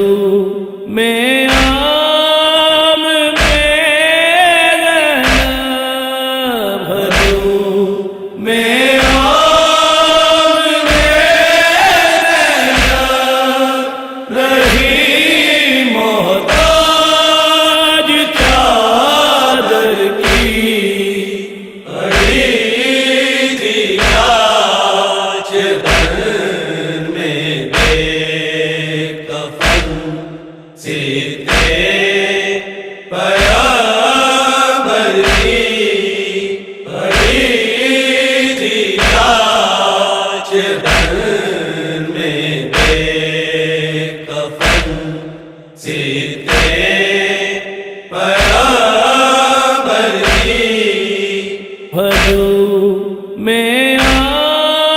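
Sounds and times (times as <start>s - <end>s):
group chanting a lament: 0.0s - 54.9s
low thumps: 3.4s - 3.8s, 7.1s - 7.6s, 12.6s - 13.2s, 24.0s - 24.4s, 25.8s - 26.4s, 27.7s - 28.3s, 29.6s - 30.6s, 31.5s - 32.0s, 35.2s - 35.7s, 42.7s - 43.2s, 44.6s - 45.5s, 46.5s - 47.0s, 50.2s - 50.7s.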